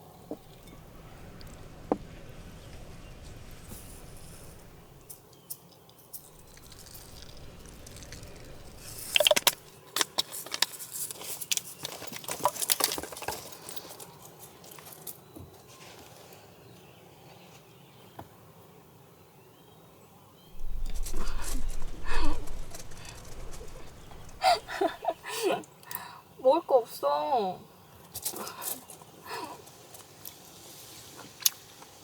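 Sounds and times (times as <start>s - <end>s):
light clicks and rattles: 0.3s - 5.2s, 6.1s - 9.8s, 20.6s - 25.2s.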